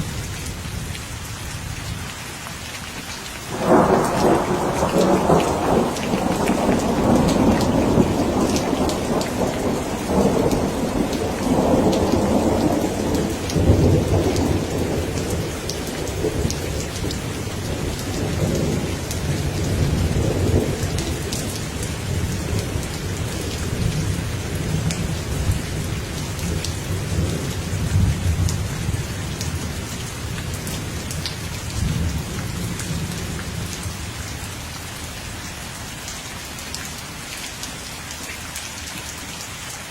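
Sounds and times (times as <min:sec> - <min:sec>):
steady rain: 0:00.0 - 0:39.9
thunder rumbling: 0:03.5 - 0:34.0.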